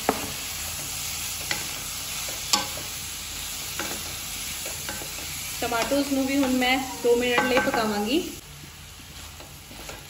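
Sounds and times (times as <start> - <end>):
onions and tomatoes sizzling: 0.0 - 10.0
spatula knocking against pan: 7.4 - 7.9.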